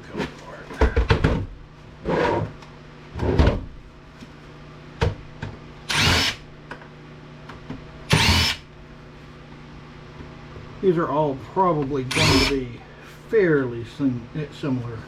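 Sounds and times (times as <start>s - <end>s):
power drill bursts: 5.9s - 6.4s, 8.1s - 8.6s, 12.1s - 12.6s.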